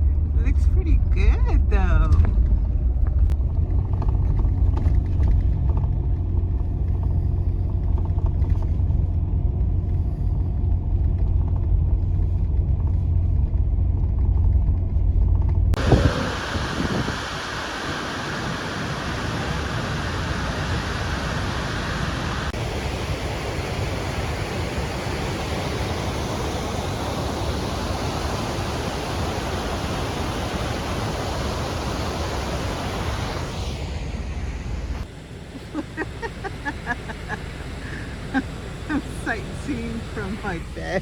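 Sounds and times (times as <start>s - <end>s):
creek water rushing: 15.8s - 41.0s.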